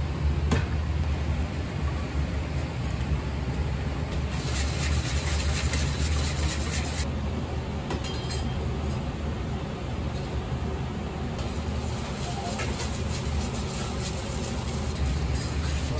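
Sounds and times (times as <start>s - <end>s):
steady low hum: 0.0s - 15.9s
sieve scratchy rasp: 4.3s - 7.1s, 11.4s - 15.9s.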